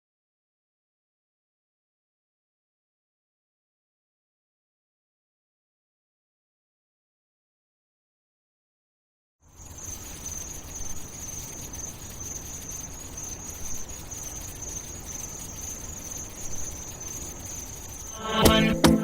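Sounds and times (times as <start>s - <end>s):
high-pitched insect chirring: 9.5s - 19.0s
faint low hum: 9.6s - 19.0s
music: 18.2s - 19.0s.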